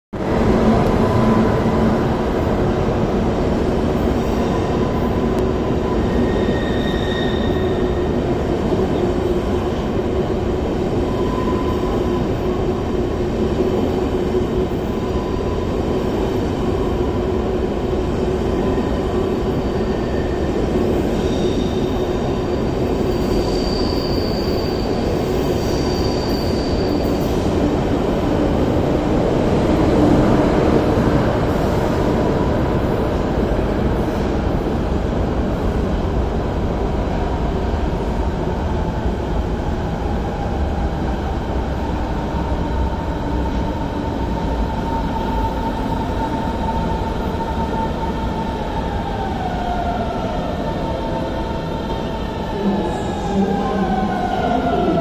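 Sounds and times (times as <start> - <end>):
faint high wheel squeals: 6.0 - 8.0, 21.2 - 27.4.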